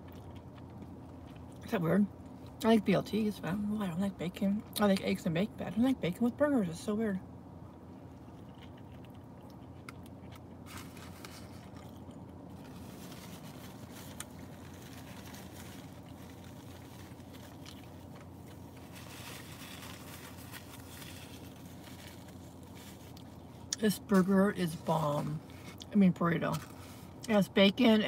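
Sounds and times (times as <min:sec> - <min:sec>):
person chewing food: 0:00.0 - 0:01.6, 0:08.0 - 0:23.8
steady low hum: 0:00.0 - 0:28.0
wrapper rustling: 0:12.6 - 0:23.6.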